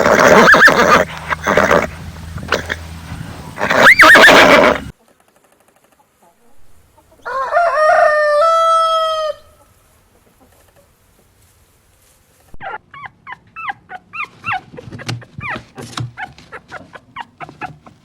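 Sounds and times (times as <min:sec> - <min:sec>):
short high yelping animal calls: 0:00.0 - 0:01.9, 0:03.6 - 0:04.9
rooster crowing: 0:03.2 - 0:04.9, 0:07.2 - 0:09.6.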